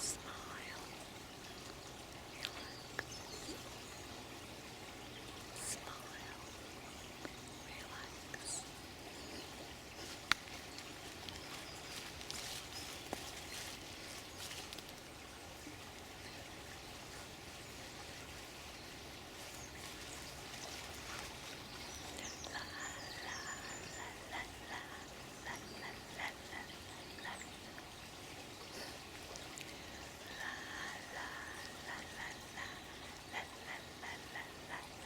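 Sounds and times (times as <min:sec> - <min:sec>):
birds chirping: 0:00.0 - 0:15.0, 0:18.7 - 0:35.0
running water flowing: 0:00.0 - 0:35.0.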